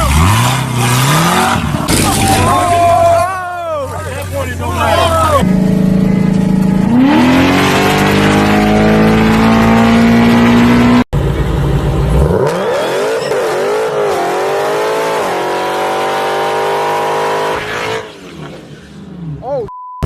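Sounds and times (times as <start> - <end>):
car engine revving high: 5.3 - 11.1, 12.1 - 18.4.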